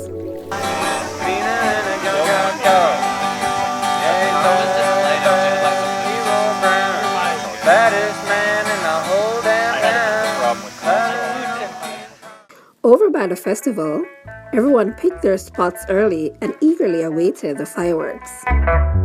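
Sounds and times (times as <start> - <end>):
acoustic guitar strummed: 0.0 - 12.5.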